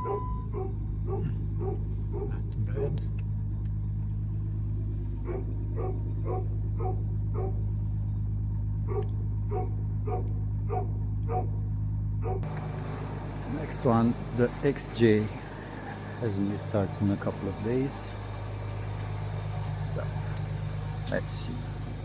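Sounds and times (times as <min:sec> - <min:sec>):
dog yipping: 0:00.0 - 0:02.9, 0:05.2 - 0:07.6, 0:08.9 - 0:11.5, 0:12.2 - 0:12.4
diesel engine idling: 0:00.0 - 0:22.0.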